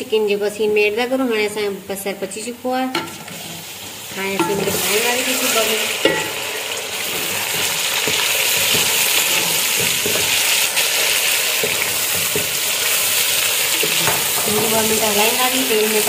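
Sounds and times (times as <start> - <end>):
chicken sizzling in hot oil: 3.1 - 16.0
spatula scraping and knocking pot: 4.4 - 15.4.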